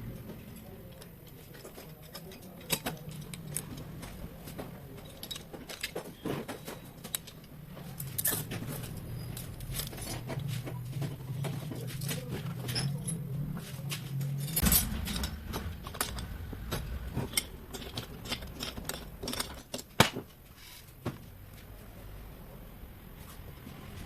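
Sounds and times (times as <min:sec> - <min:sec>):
metal tools clinking on workbench: 0:00.9 - 0:16.2, 0:17.2 - 0:20.3
low steady hum: 0:07.2 - 0:20.6.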